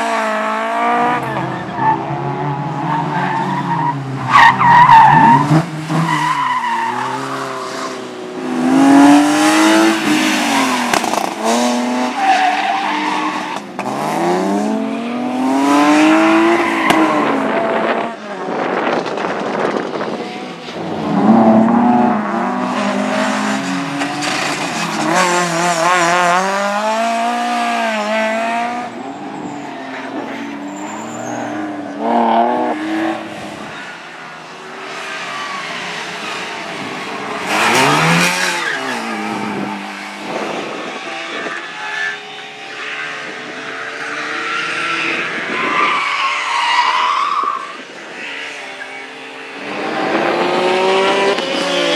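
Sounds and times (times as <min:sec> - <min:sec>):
rally car engines revving: 0:00.0 - 0:51.9
tyres squealing and skidding: 0:00.9 - 0:08.2, 0:12.0 - 0:13.9, 0:15.9 - 0:17.4, 0:28.9 - 0:40.8, 0:44.2 - 0:49.0.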